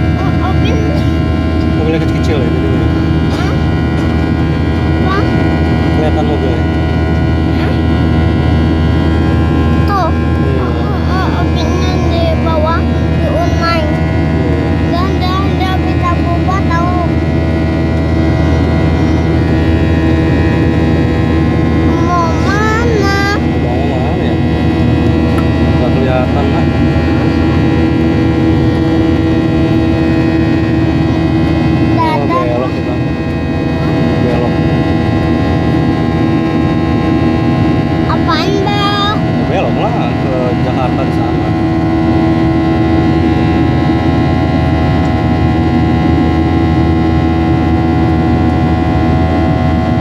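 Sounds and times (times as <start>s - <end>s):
airliner cabin engine drone: 0.0s - 50.0s
steady tones: 0.0s - 50.0s.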